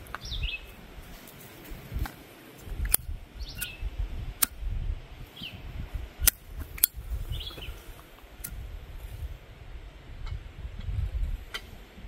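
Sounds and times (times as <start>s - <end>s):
birds chirping: 0.0s - 4.0s, 5.2s - 8.4s.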